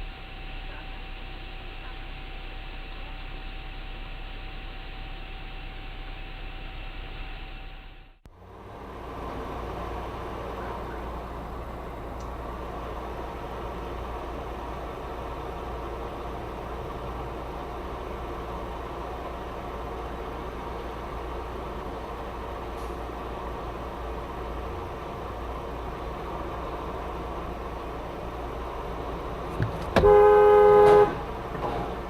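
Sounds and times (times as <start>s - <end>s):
car engine and road noise: 0.0s - 32.0s
car horn: 29.5s - 31.5s.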